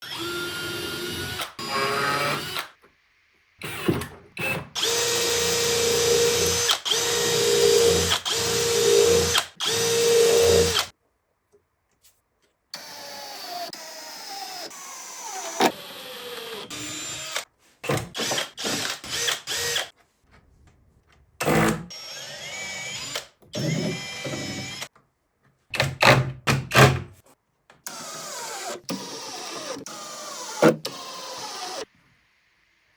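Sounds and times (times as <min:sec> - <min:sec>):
power drill bursts: 0:03.6 - 0:10.9, 0:27.9 - 0:31.9.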